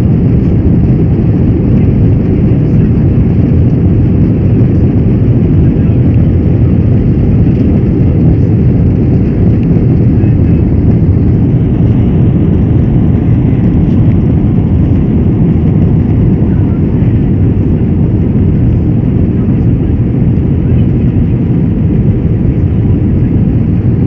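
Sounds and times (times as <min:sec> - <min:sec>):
jet engine rumble in cabin: 0:00.0 - 0:24.0.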